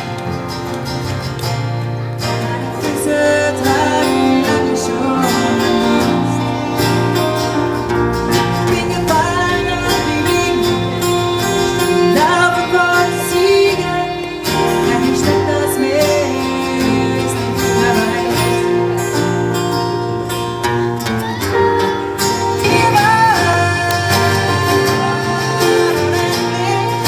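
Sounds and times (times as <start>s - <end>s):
live pop band playing: 0.0s - 27.0s
woman singing: 2.3s - 7.4s, 8.3s - 19.5s, 22.6s - 27.0s.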